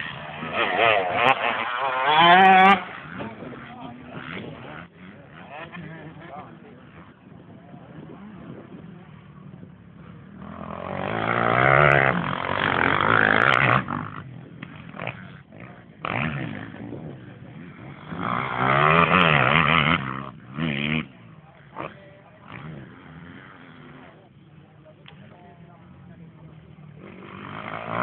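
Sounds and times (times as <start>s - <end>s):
motorcycle engines revving: 0.0s - 28.0s.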